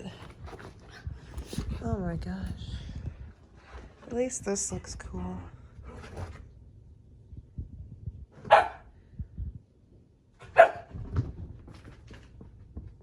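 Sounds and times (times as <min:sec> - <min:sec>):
shuffling: 0:00.0 - 0:04.7
dog barking: 0:08.4 - 0:08.9, 0:10.4 - 0:10.9.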